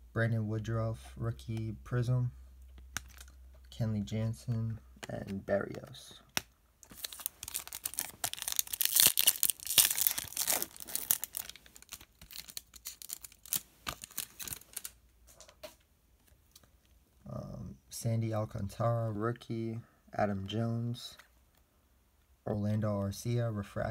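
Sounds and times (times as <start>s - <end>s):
cards clicking and rustling: 2.6s - 16.8s
foil wrapper tearing and crinkling: 6.9s - 15.0s.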